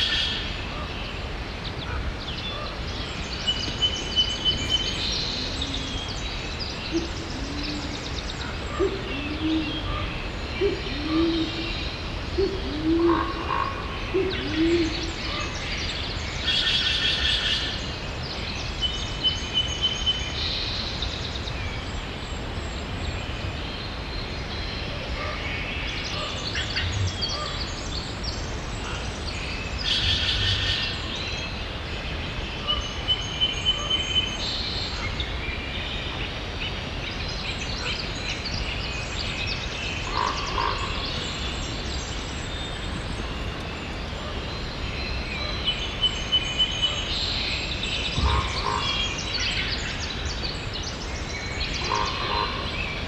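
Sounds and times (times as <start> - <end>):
steady rain: 0.0 - 14.1
birds chirping and trilling: 0.0 - 17.9, 23.4 - 53.0
bird hooting: 4.4 - 6.2, 6.8 - 11.8.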